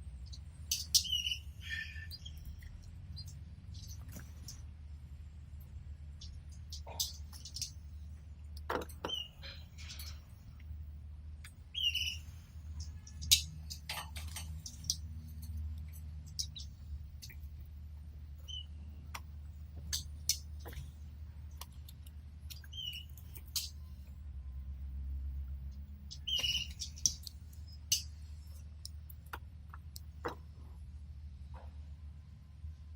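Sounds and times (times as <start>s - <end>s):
steady low hum: 0.0s - 32.9s
canaries chirping: 0.3s - 2.6s, 11.7s - 15.0s, 18.4s - 18.9s, 22.5s - 23.7s, 26.1s - 28.1s.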